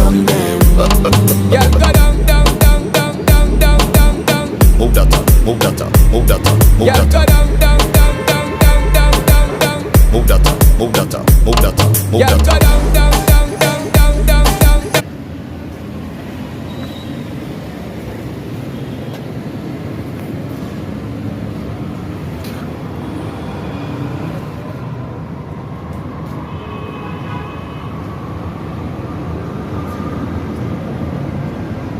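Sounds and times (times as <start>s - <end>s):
music: 0.0s - 15.0s
noisy rumble: 0.0s - 16.4s.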